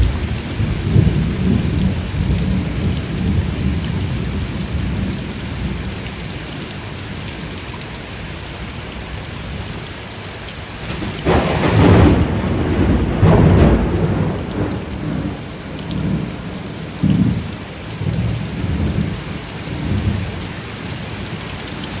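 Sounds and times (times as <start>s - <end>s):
thunder rumbling: 0.0s - 5.8s, 10.8s - 20.4s
steady rain falling: 0.0s - 22.0s.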